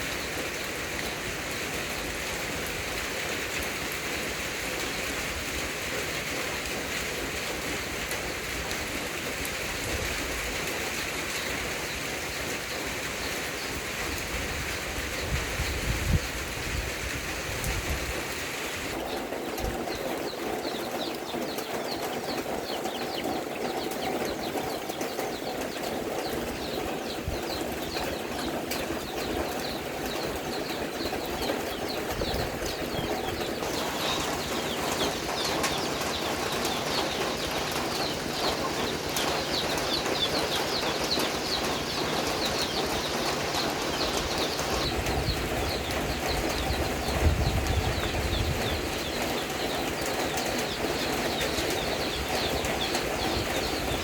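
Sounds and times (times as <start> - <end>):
steady rain falling: 0.0 - 54.0
high chirping calls: 18.5 - 54.0.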